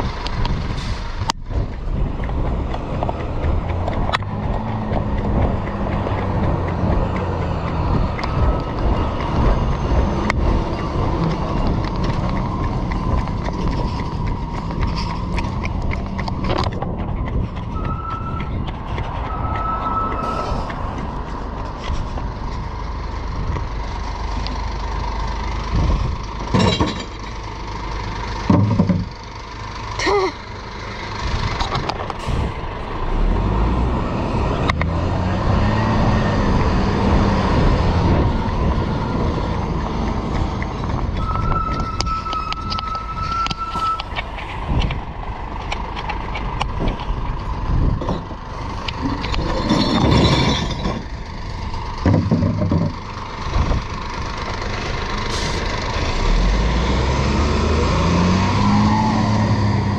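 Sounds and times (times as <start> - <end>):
truck engine rumbling: 0.0 - 59.9
short beeps: 17.8 - 18.5, 19.3 - 20.6
loud knocks and clatters: 25.8 - 27.4, 28.4 - 29.2, 43.8 - 53.8.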